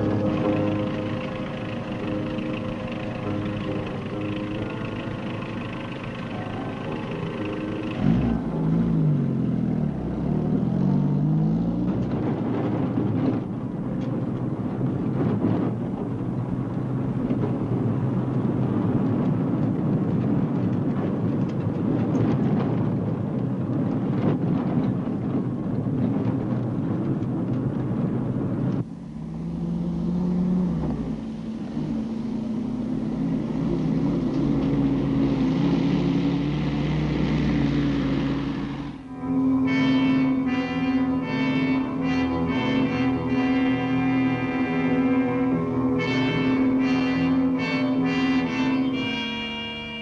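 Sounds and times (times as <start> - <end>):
held low tones: 0.0 - 20.7, 24.7 - 50.0
vehicle engine rumbling: 0.0 - 50.0.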